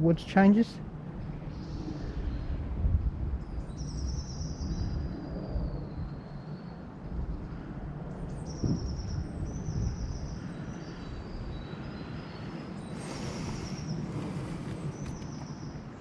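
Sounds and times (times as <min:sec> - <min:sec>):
wind on microphone: 0:00.8 - 0:16.0
small birds chattering and singing: 0:08.3 - 0:16.0.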